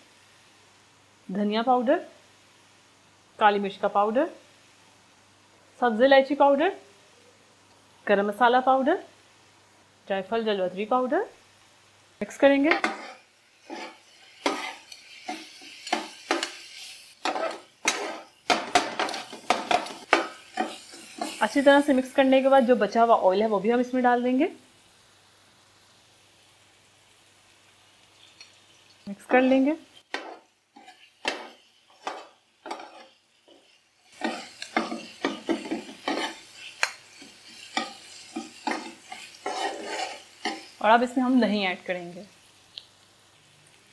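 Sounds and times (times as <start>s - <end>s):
masala frying in oil: 0.0s - 43.9s
utensil scraping a pan: 12.7s - 21.6s, 30.1s - 40.8s.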